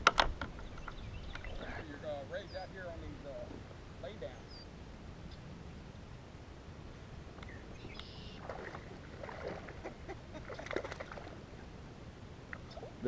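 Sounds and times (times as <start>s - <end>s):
steady low rumble: 0.0s - 13.0s
water splashing around kayak: 8.3s - 11.6s.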